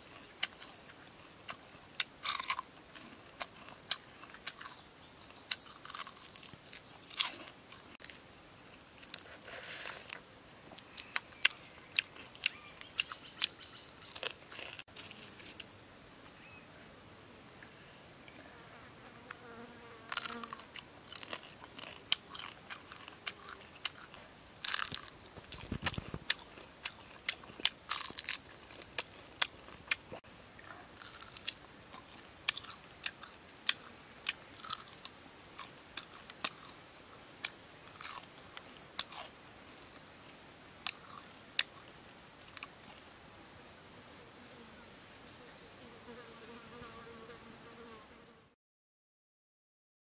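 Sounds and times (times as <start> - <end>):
crisp crunching and chewing: 0.0 - 4.8, 5.4 - 10.2, 10.8 - 15.6, 20.1 - 30.2, 31.0 - 36.8, 37.4 - 40.1, 40.8 - 41.9
faint high insect buzz: 43.6 - 48.6.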